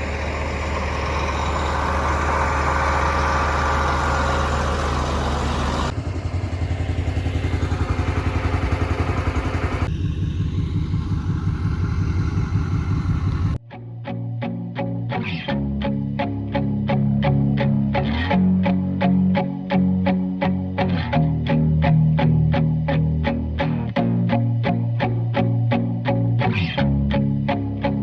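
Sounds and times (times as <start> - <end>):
tractor engine running: 0.0 - 13.6.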